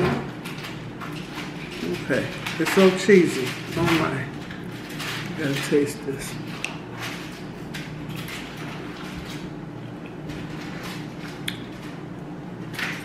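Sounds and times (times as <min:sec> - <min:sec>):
steady low hum: 0:00.0 - 0:13.0
person chewing pizza: 0:04.4 - 0:12.3
wet mouth clicks and smacks: 0:11.4 - 0:11.6.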